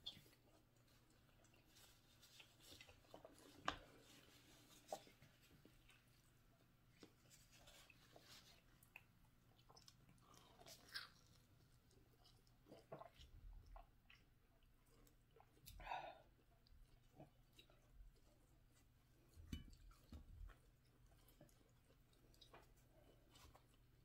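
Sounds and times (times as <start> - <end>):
faint chewing: 0.0 - 24.0.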